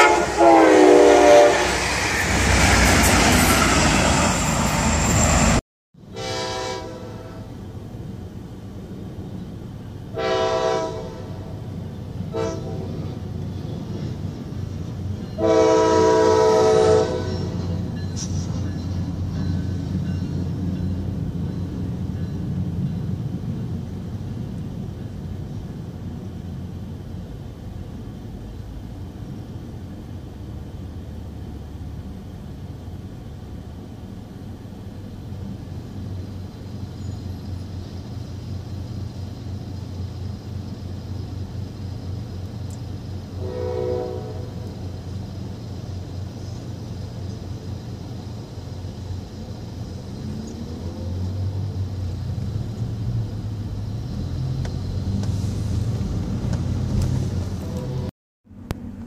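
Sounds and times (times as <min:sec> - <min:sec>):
train horn blast: 0:00.0 - 0:02.1, 0:06.0 - 0:07.6, 0:10.1 - 0:11.6, 0:12.3 - 0:13.2, 0:15.4 - 0:18.6, 0:43.4 - 0:44.8, 0:57.6 - 0:58.1
train rumbling: 0:00.0 - 0:59.0.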